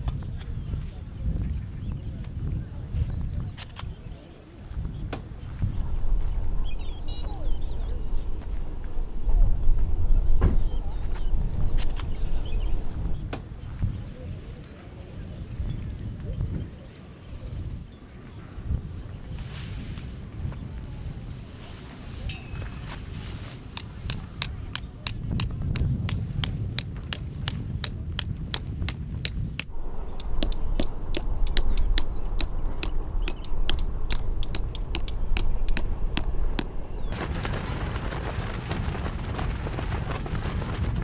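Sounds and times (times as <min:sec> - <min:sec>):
rapid hammer strikes ringing: 0:23.8 - 0:37.2
wind rumbling on microphone: 0:25.4 - 0:41.0.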